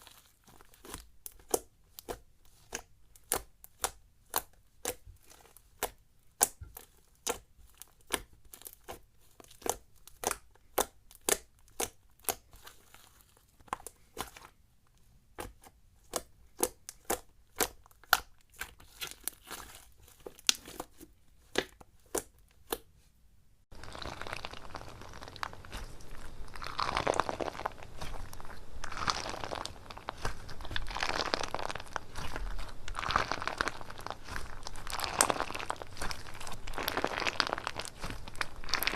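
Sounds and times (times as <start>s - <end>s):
slime clicking: 0.8s - 12.7s
crunchy slime squeezed: 23.8s - 38.9s.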